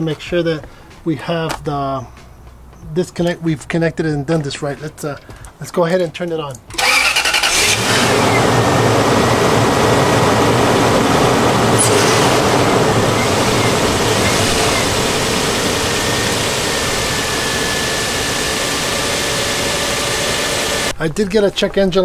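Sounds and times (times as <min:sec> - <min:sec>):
car engine idling: 0:06.8 - 0:20.9.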